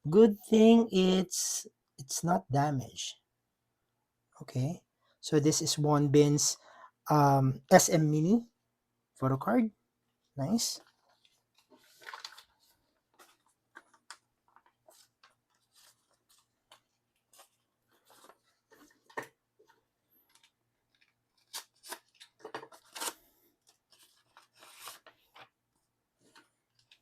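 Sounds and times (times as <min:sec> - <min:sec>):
plastic packaging rustling: 0:10.8 - 0:25.6.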